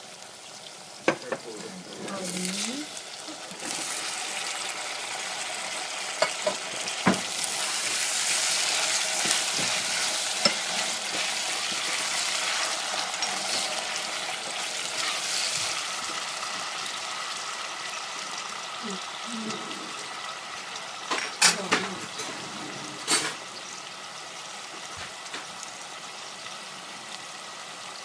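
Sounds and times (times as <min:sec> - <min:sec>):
vegetables sizzling in a saucepan: 0:00.0 - 0:28.0
spatula knocking on pan: 0:06.2 - 0:07.3
wooden spatula stirring: 0:06.7 - 0:16.6.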